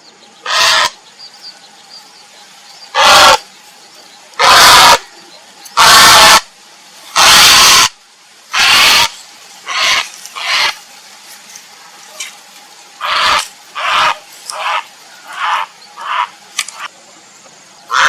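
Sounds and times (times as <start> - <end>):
heron croaking calls: 0.4 - 1.0, 2.9 - 3.4, 4.4 - 5.1, 5.8 - 6.5, 7.2 - 10.8, 13.0 - 16.9.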